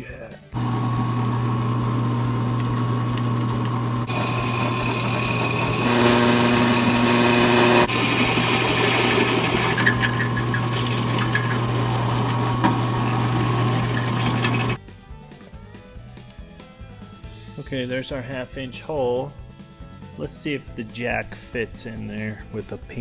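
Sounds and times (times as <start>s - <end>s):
power drill boring through metal: 0.6s - 14.8s.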